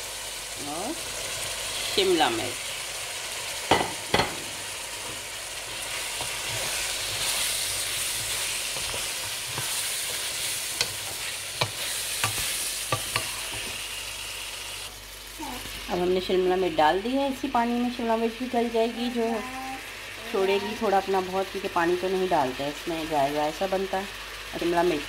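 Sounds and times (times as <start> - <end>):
meat and vegetables sizzling in pan: 0.0 - 25.0
wooden spoon stirring: 5.0 - 13.7.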